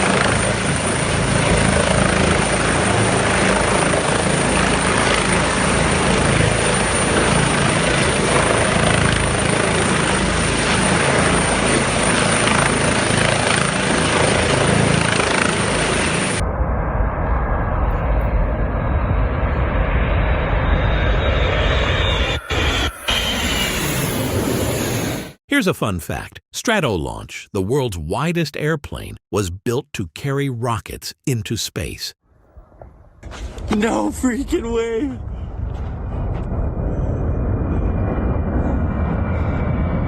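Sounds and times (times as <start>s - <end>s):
helicopter rotor and engine: 0.0s - 25.4s, 35.4s - 40.0s
low rumble: 16.4s - 25.0s, 32.4s - 40.0s.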